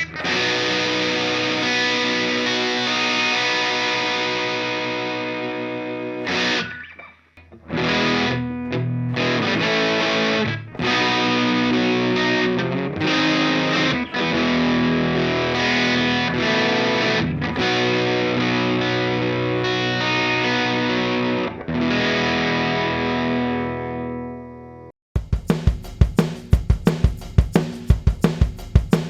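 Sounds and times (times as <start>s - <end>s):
distorted electric guitar: 0.0s - 24.9s.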